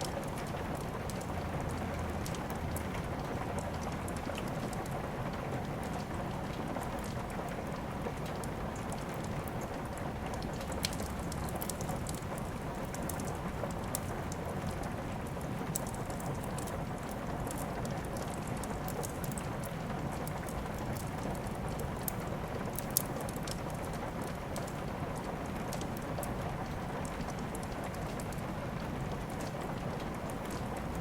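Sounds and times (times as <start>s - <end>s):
steady rain: 0.0s - 31.0s
wood fire crackling: 0.0s - 31.0s.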